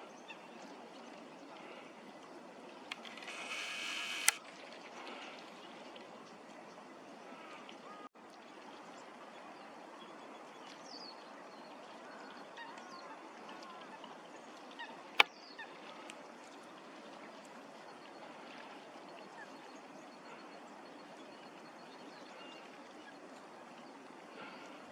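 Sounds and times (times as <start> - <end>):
sharp click: 2.9 - 4.4.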